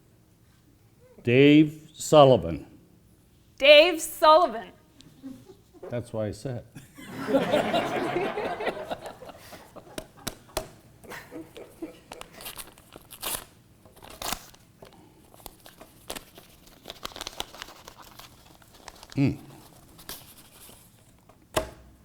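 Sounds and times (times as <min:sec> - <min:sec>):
paper crinkling: 0:12.0 - 0:21.1
paper envelope tearing: 0:12.2 - 0:14.6, 0:15.3 - 0:20.8.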